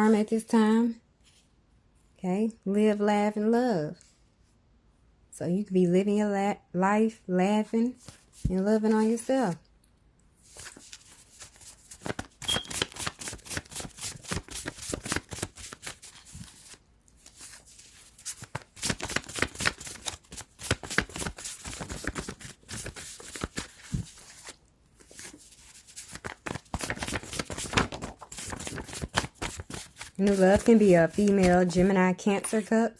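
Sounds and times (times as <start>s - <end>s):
cards being shuffled: 10.4s - 32.6s.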